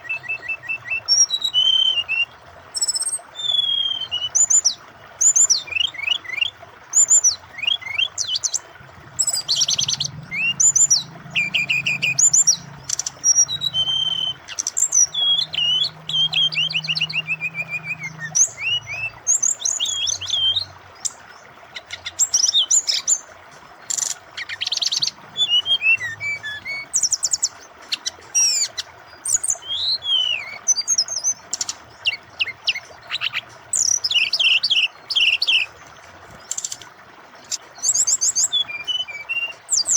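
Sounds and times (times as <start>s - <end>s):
bird singing: 0.0s - 39.9s
flowing water: 0.0s - 39.9s.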